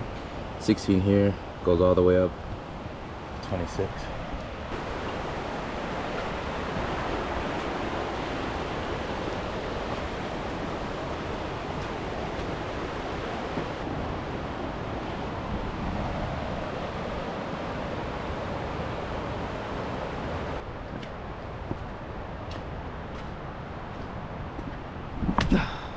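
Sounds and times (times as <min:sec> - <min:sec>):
water rushing: 0:02.6 - 0:20.7.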